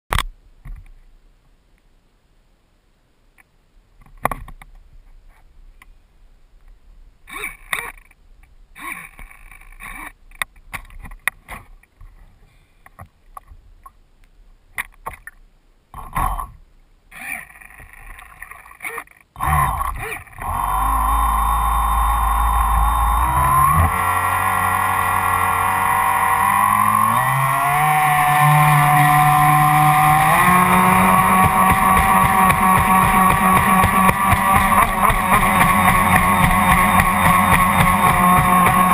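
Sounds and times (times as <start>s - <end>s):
electric motor whine: 19.4s - 38.9s
knocks and clicks: 30.0s - 38.9s.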